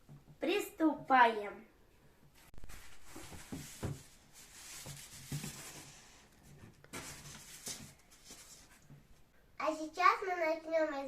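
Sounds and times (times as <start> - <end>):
foam rustling and scraping: 2.6 - 8.8.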